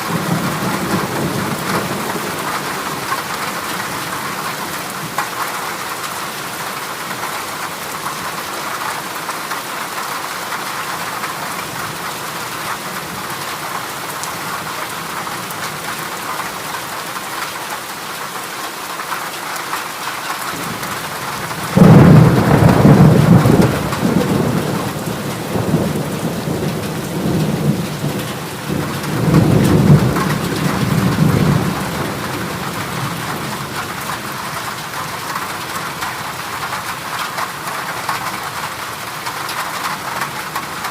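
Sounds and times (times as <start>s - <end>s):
heavy rain on a metal roof: 0.0s - 40.9s
thunder rolling: 20.5s - 34.2s.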